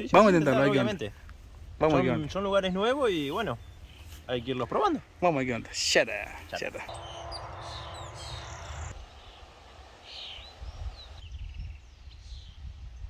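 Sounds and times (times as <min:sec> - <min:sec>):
small birds chirping: 0:02.7 - 0:04.7, 0:06.4 - 0:12.8
steady low rumble: 0:06.8 - 0:11.1.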